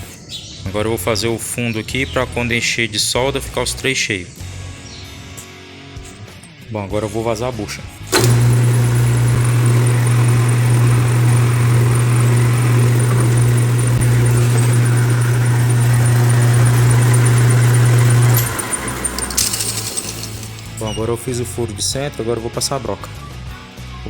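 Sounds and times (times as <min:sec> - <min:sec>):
metal lathe humming: 0:08.1 - 0:21.1.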